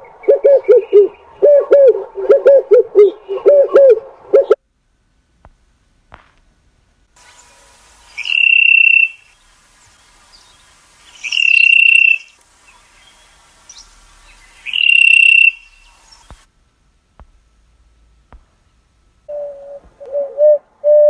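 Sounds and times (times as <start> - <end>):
faint steady hiss: 0.0 - 21.0
bird whistling call: 8.1 - 9.4, 11.1 - 12.4, 13.0 - 16.3, 19.3 - 21.0.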